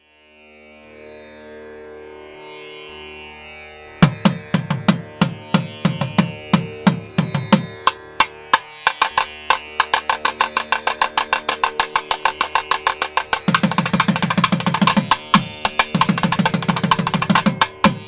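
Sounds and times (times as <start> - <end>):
drum strokes: 4.0 - 18.0.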